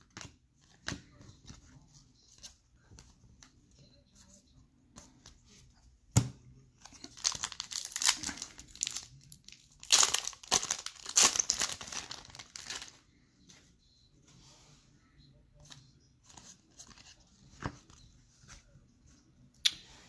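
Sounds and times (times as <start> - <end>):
foil wrappers tearing and crinkling: 7.0 - 12.9.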